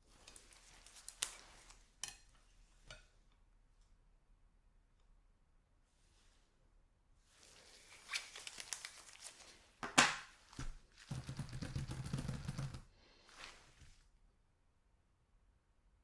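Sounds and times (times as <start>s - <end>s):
packaging crinkling and tearing: 7.6s - 9.6s.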